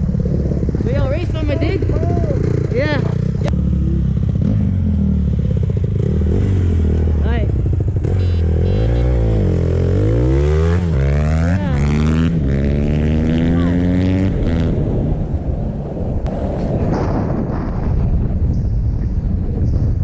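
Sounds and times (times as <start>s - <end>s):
dirt bike engine accelerating: 0.0s - 20.0s
wind noise on microphone: 14.1s - 20.0s.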